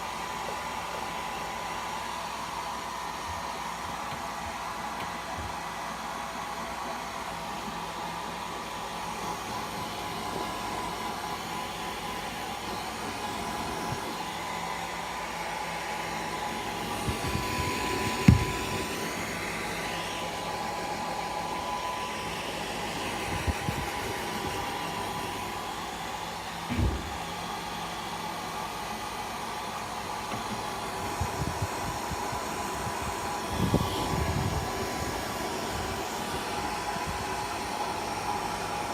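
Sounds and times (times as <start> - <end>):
hair dryer running: 0.0 - 38.9
dull thumps: 16.9 - 18.8.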